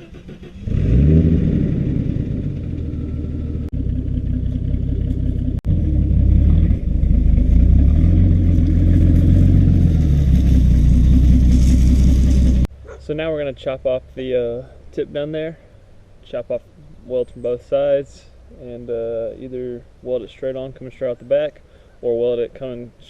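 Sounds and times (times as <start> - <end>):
engine idling with exhaust rumble: 1.8 - 12.7.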